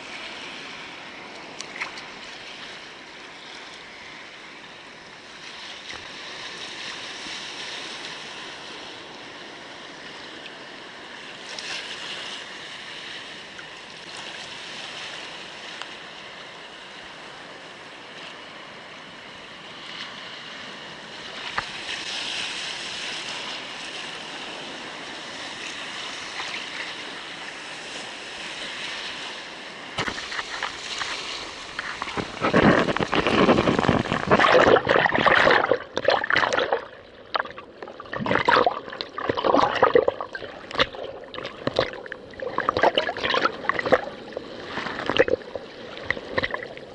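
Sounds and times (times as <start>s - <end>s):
water lapping around a kayak: 0.0s - 46.9s
water splashing: 30.0s - 46.9s.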